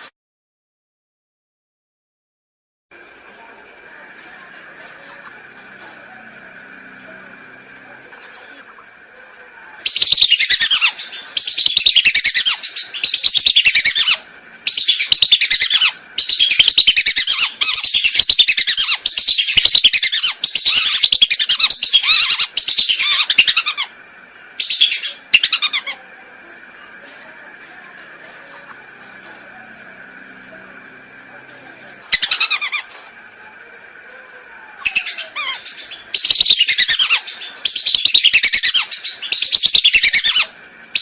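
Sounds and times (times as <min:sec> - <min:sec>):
faint steady hum: 0:02.9 - 0:41.0
whistling duck calls: 0:34.8 - 0:41.0.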